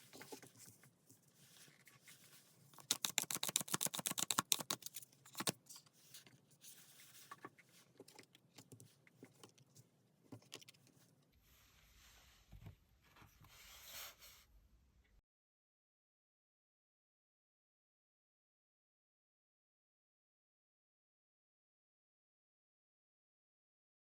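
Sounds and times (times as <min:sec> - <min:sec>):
cards being handled: 0:01.6 - 0:07.5
cards being shuffled: 0:01.7 - 0:05.6.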